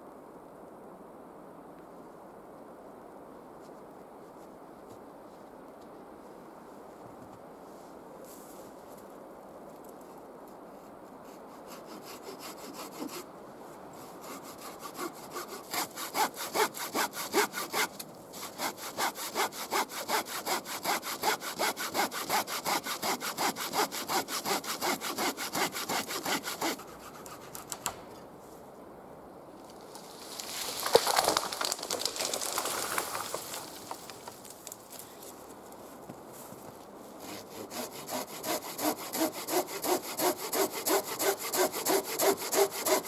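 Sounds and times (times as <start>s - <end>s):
hand saw cutting wood: 11.3s - 13.3s, 14.0s - 27.9s, 37.2s - 43.0s.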